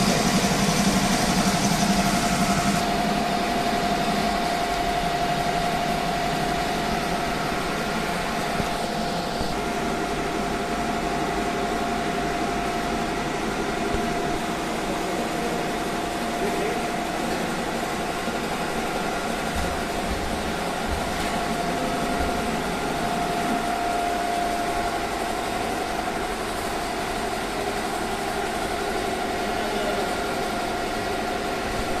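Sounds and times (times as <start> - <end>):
embroidery machine stitching: 0.0 - 2.9.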